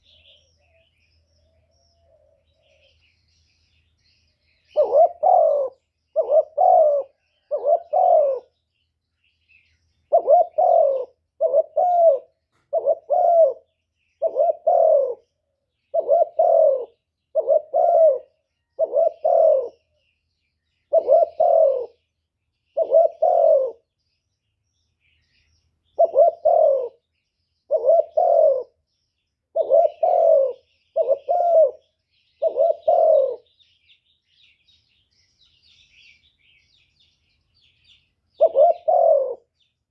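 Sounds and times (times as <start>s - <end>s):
dove cooing: 0.0s - 3.8s, 4.6s - 8.6s, 10.0s - 20.0s, 20.8s - 22.1s, 22.7s - 23.9s, 25.9s - 27.1s, 27.7s - 28.9s, 29.5s - 33.6s, 38.4s - 39.5s
small birds chirping: 0.0s - 39.9s.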